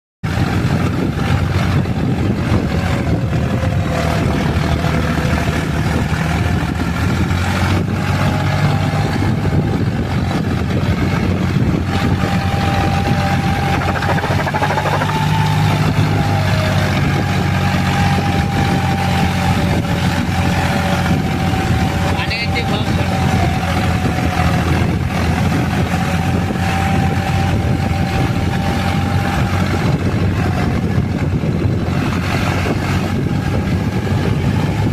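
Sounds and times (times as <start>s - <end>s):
tractor diesel engine running: 0.3s - 34.9s
steady whine: 12.6s - 16.4s.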